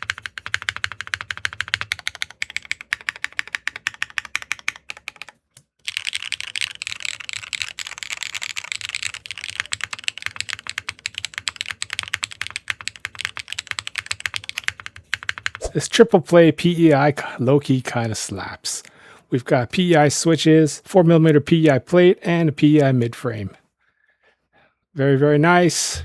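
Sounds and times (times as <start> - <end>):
mechanical keyboard typing: 0.0 - 15.6.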